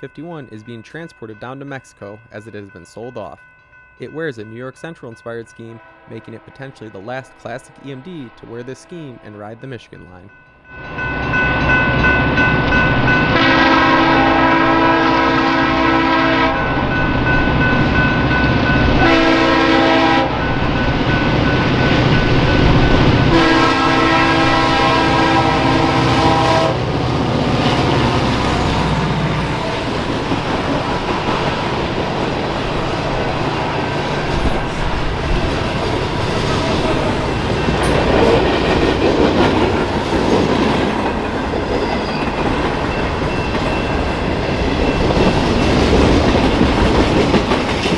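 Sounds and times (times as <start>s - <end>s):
train rumbling and clattering: 10.0s - 47.9s
locomotive horn blasts: 13.2s - 16.8s, 19.0s - 20.5s, 23.3s - 29.7s.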